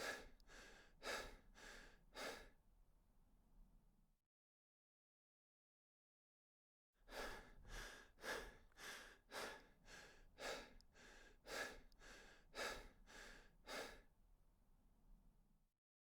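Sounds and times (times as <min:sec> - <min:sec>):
person breathing rhythmically: 0:00.0 - 0:02.6, 0:07.0 - 0:14.1.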